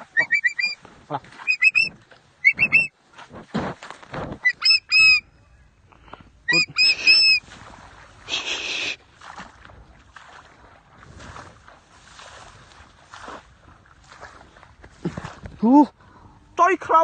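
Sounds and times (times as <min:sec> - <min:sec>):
bird short high calls: 0:00.0 - 0:00.8, 0:01.4 - 0:02.9, 0:04.4 - 0:05.3, 0:06.5 - 0:07.4
rustling of feathers and grass: 0:06.0 - 0:15.7.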